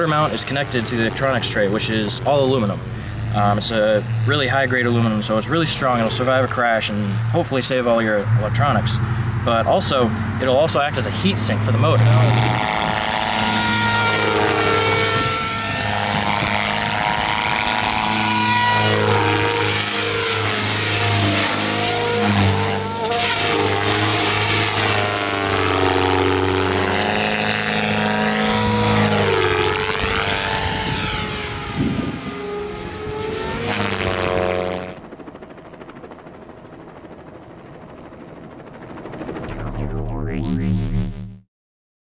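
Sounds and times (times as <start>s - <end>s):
rc helicopter motor whine: 11.2s - 41.0s.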